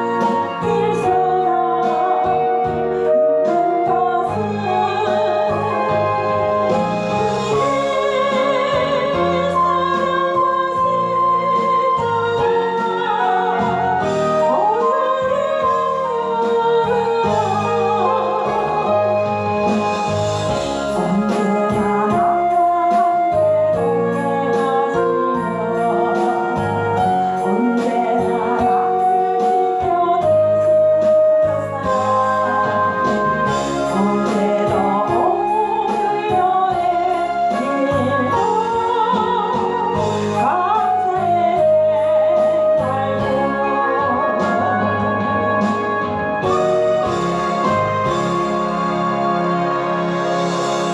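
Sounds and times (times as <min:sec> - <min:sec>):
instrumental backing track: 0:00.0 - 0:50.9
person singing with vibrato: 0:00.0 - 0:50.9.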